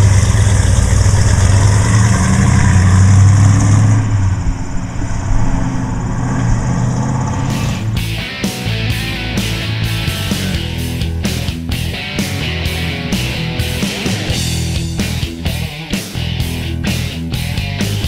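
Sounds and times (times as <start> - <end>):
car engine with deep exhaust: 0.0 - 8.1.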